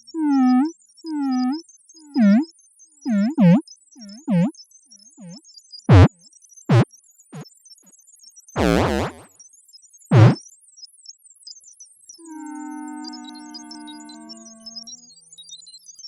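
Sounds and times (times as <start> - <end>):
robot beeps and chirps: 3.1 - 4.5, 5.2 - 6.1, 8.6 - 9.2, 10.1 - 10.4.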